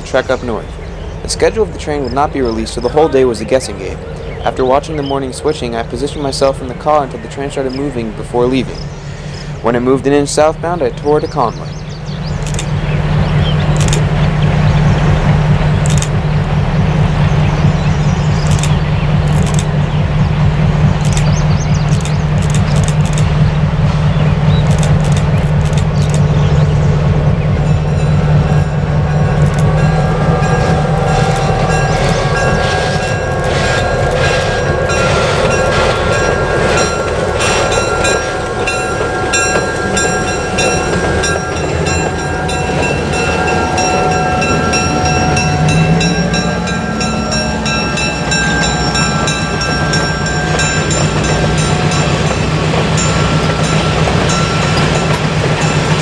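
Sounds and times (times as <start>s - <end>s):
low train engine drone: 0.0s - 56.0s
wheels clicking over rails: 18.0s - 26.9s, 29.0s - 56.0s.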